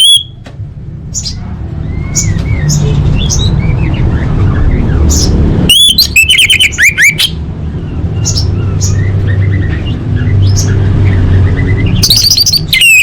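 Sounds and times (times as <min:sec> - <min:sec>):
thrush whistled notes and chirps: 0:05.7 - 0:07.4.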